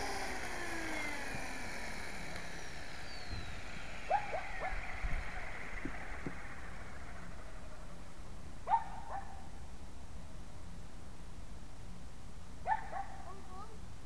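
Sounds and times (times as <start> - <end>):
rc helicopter motor whine: 0.0 - 8.2.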